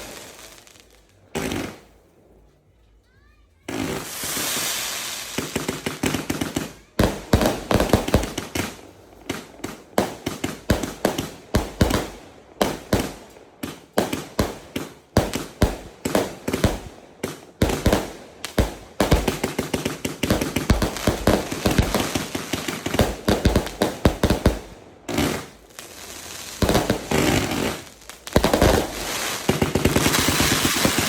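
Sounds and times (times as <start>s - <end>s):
firework bangs: 0.0s - 2.0s, 3.6s - 31.0s
firework hissing burst: 3.8s - 6.6s, 25.2s - 31.0s.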